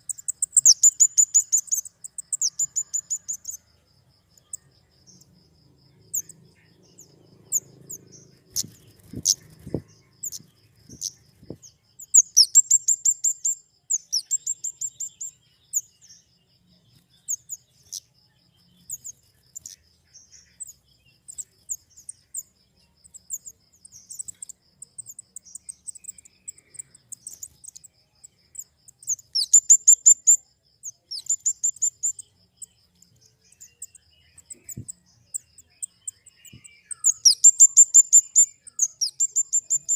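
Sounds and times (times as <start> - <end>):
high-pitched bird chips: 0.0 - 3.6, 6.2 - 15.8, 29.0 - 30.4, 33.5 - 39.9.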